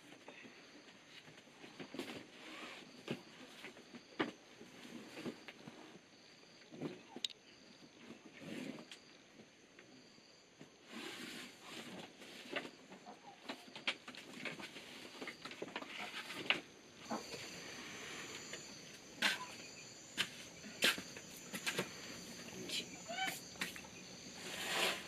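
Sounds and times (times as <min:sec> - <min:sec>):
insect chirring: 0:13.7 - 0:25.0.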